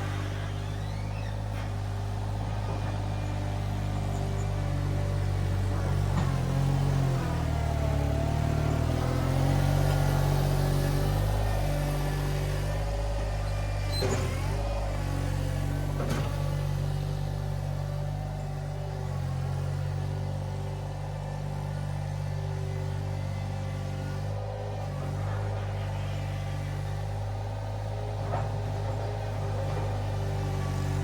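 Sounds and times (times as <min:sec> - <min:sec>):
skid steer engine running: 0:00.0 - 0:31.0.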